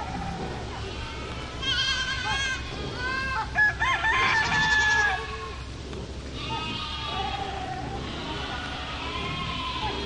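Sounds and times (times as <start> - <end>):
goat bleating: 0.0 - 3.6, 4.3 - 10.0
rooster crowing: 3.3 - 5.6.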